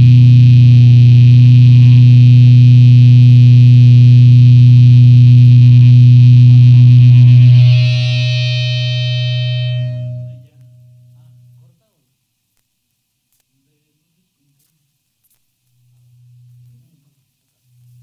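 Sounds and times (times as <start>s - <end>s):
distorted electric guitar noise: 0.0s - 11.7s
heavy low hum: 0.0s - 11.7s
held ringing tones: 7.0s - 11.6s.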